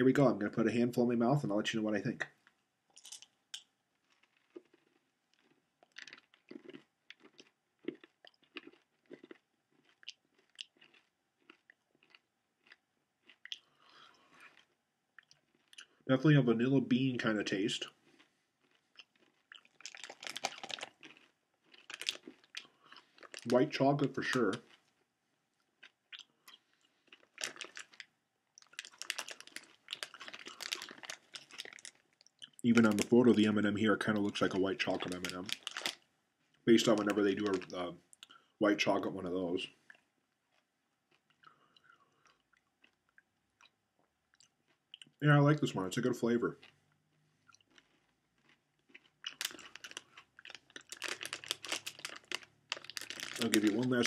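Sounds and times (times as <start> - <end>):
person chewing crunchy candy: 3.0 - 16.0, 17.8 - 33.2, 34.2 - 36.0, 36.8 - 38.4, 39.9 - 45.2, 46.6 - 54.0
plastic bag crinkling: 18.8 - 24.7, 27.0 - 33.2, 34.2 - 36.0, 36.8 - 37.8, 49.3 - 54.0.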